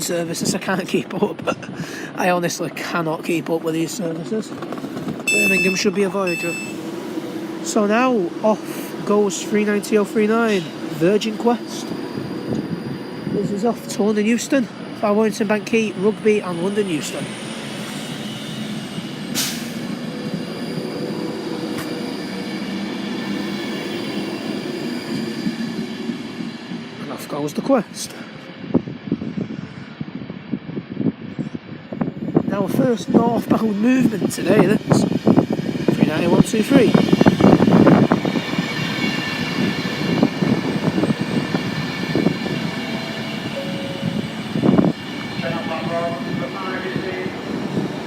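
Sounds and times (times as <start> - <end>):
electric train rumble and hum: 0.0 - 48.0
train wheels clattering on rails: 2.5 - 12.9
whining traction tones: 2.8 - 48.0.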